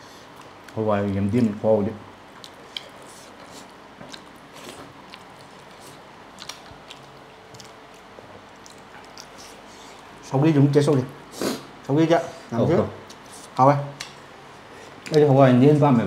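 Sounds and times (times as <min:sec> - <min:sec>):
wet chewing clicks and smacks: 0:02.3 - 0:10.2.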